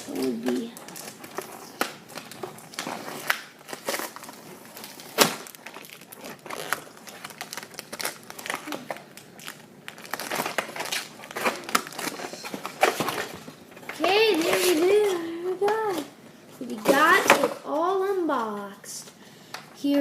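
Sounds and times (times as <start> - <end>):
packing tape peeling: 0.0 - 13.1
packaging crinkling: 0.0 - 16.1.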